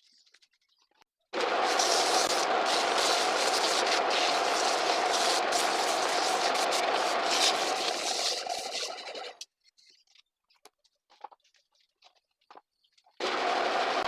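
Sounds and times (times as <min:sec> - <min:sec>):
hiss of wood turning: 0:01.4 - 0:09.3
wood lathe humming: 0:01.4 - 0:09.3, 0:13.2 - 0:14.0.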